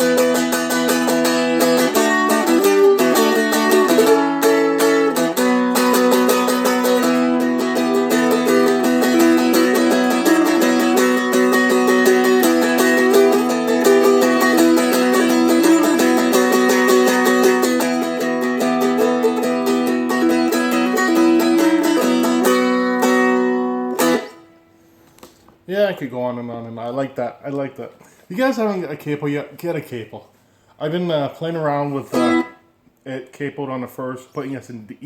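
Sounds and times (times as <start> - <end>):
dulcimer flatpicked notes: 0.0 - 24.6, 32.0 - 32.6.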